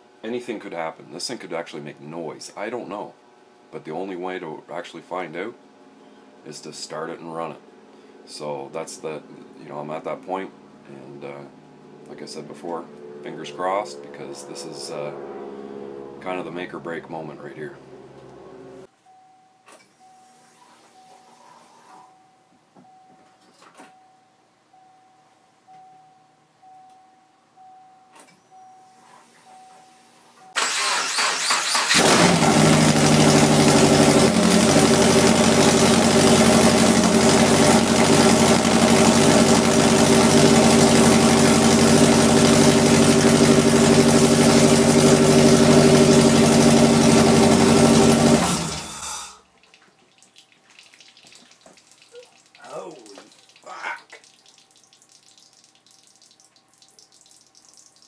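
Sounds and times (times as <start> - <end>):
engine starter cranking: 30.6 - 40.2, 45.9 - 49.4
engine running loud: 31.9 - 49.1.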